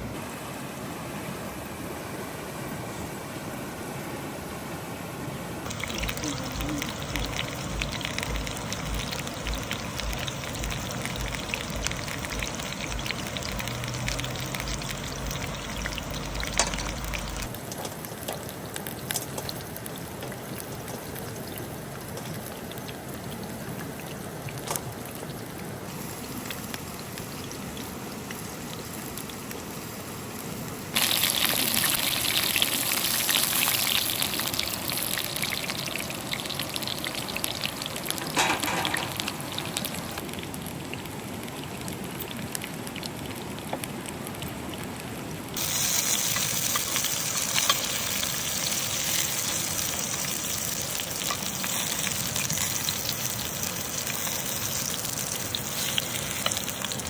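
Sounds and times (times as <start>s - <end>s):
water pouring and trickling: 5.6s - 57.0s.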